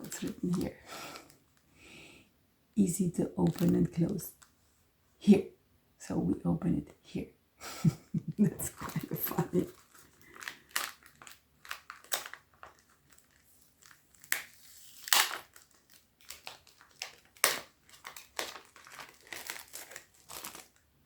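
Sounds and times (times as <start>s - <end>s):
tobacco pouch crinkling: 0.0s - 1.7s, 3.4s - 4.5s, 8.6s - 20.9s.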